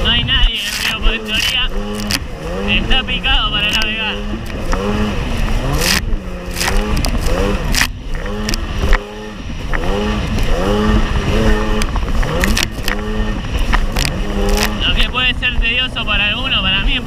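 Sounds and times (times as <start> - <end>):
hull slapping waves: 0.0 - 17.0
jet ski engine revving: 0.0 - 17.0.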